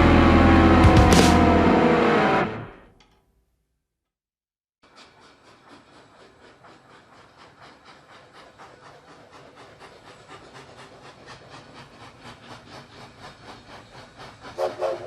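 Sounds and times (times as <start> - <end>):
steam hissing: 4.8 - 15.0
steam locomotive chugging: 4.8 - 15.0.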